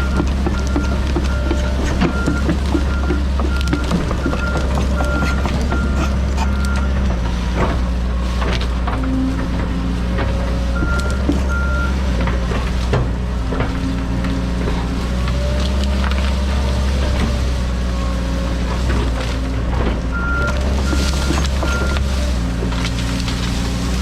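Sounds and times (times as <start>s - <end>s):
knocks and cracks: 0.0s - 6.7s, 18.8s - 24.0s
backup alarm beeping: 0.0s - 7.0s, 10.8s - 12.0s
excavator diesel engine running: 0.0s - 24.0s.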